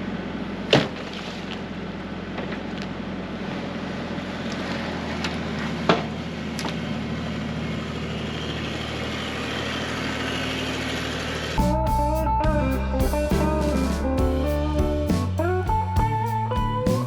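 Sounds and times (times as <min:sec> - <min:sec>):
guitar music: 0:11.6 - 0:17.0.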